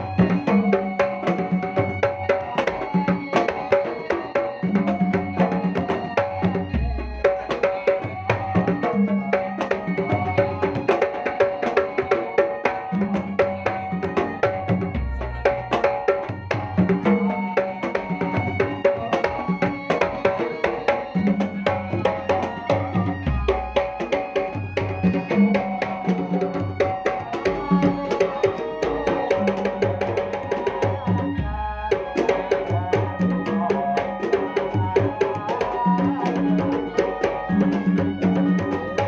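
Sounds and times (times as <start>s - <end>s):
fast hand drum rhythm: 0.0s - 39.0s
sustained pitched tones: 12.8s - 39.0s.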